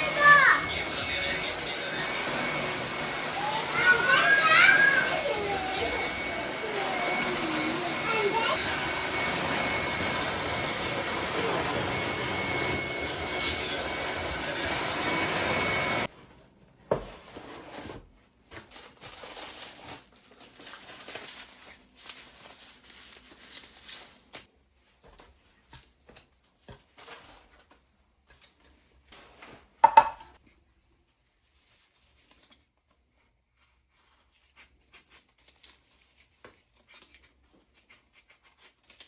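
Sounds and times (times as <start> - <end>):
appliance motor whirring: 0.6 - 16.1.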